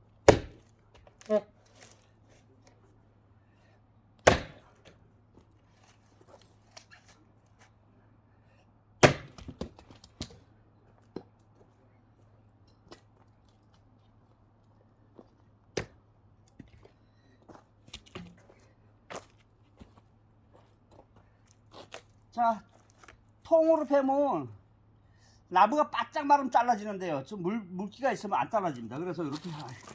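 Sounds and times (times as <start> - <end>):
axe splitting firewood: 0.2 - 2.2, 4.2 - 5.0, 9.0 - 10.4, 15.7 - 16.8
knocks of wood: 0.3 - 1.2, 4.2 - 5.0, 9.0 - 10.4.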